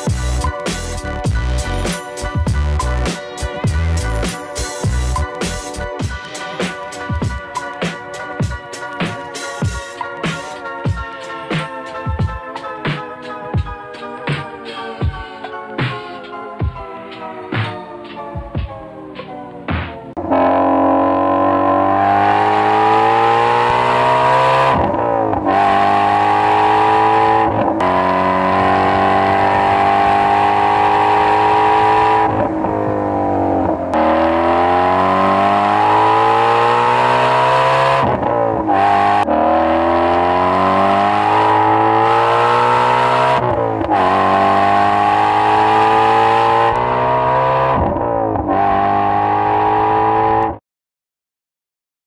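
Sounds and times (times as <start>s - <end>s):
car engine revving hard: 20.2s - 50.6s.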